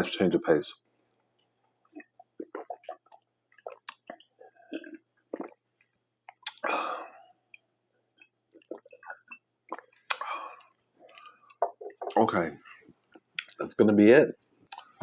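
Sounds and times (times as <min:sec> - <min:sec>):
chewing with mouth clicks: 0:01.1 - 0:06.7, 0:08.2 - 0:13.6.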